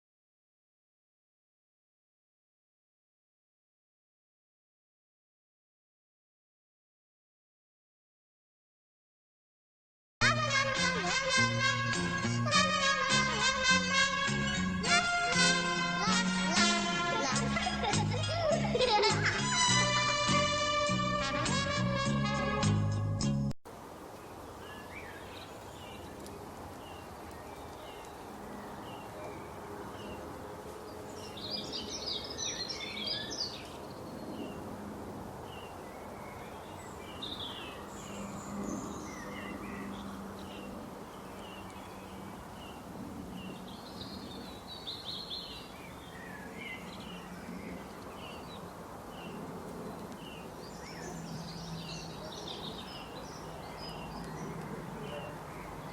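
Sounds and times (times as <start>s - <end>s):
bursts of twittering birdsong: 23.9s - 55.9s.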